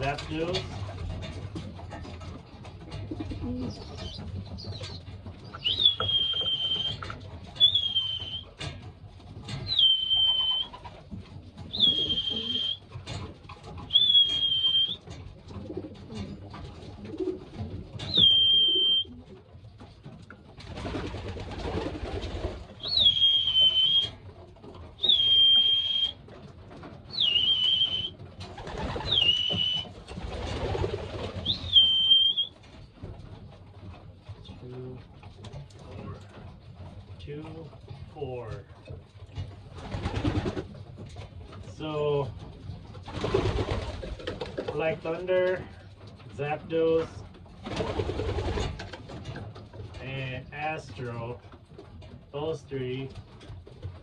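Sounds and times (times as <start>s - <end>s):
young pigeons squeaking: 0.0s - 8.7s, 9.6s - 20.0s, 22.7s - 32.8s.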